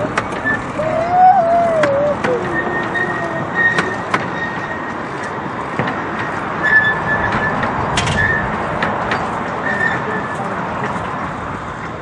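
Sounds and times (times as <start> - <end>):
miniature train rolling on track: 0.0 - 12.0
thin high wheel squeal: 0.3 - 5.1, 6.6 - 8.6, 9.2 - 10.5.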